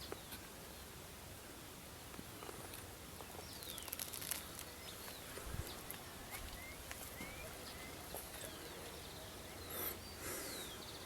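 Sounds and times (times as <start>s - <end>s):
faint outdoor hiss: 0.0s - 11.0s
birds whistling: 4.7s - 11.0s.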